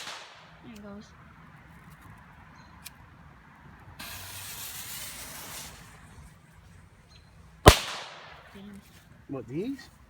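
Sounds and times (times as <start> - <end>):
firework fuse hissing: 4.0 - 6.3.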